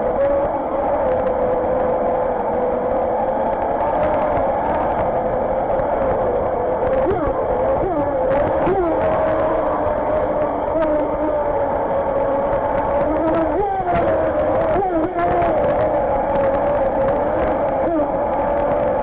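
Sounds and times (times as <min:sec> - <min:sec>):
model boat motor whine: 0:00.0 - 0:19.0.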